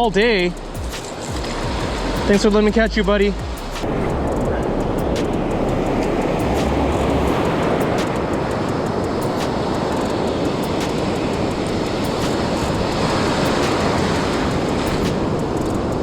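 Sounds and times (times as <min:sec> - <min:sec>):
breaking surf: 0:00.0 - 0:16.0
wind: 0:00.0 - 0:16.0.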